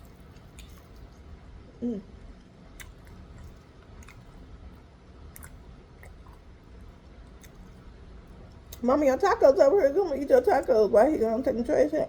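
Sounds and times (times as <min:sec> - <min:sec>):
person chewing food: 0:00.0 - 0:01.5, 0:02.2 - 0:08.8.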